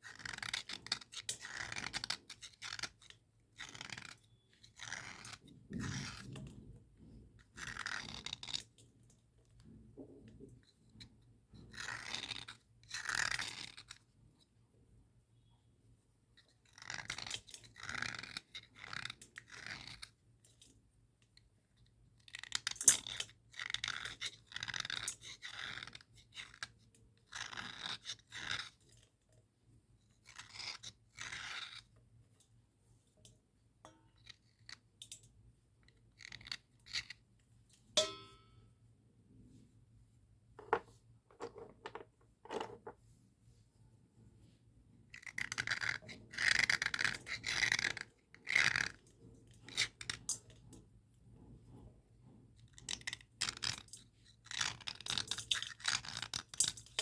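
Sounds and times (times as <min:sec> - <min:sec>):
slate pencil scraping on slate: 0:00.1 - 0:06.7.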